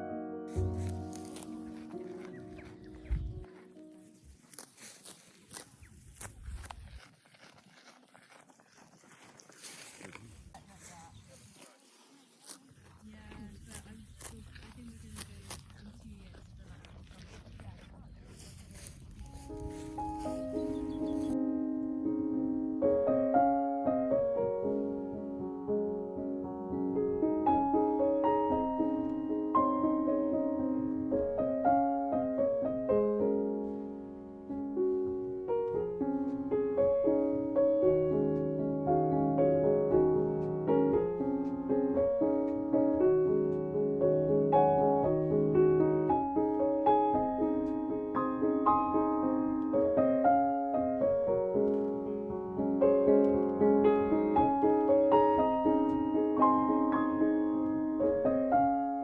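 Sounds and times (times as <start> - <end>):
gentle solo piano: 19.4 - 59.0.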